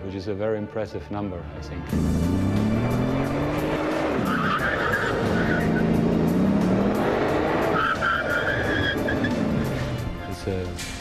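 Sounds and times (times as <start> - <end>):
car engine under hard driving: 1.9 - 10.1
tyres squealing: 3.3 - 10.0.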